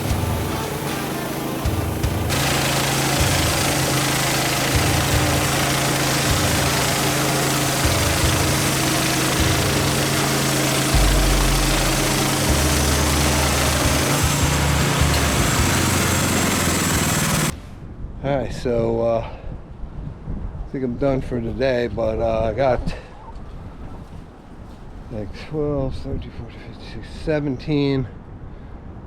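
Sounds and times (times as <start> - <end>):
sawmill gas engine running: 0.0 - 17.6.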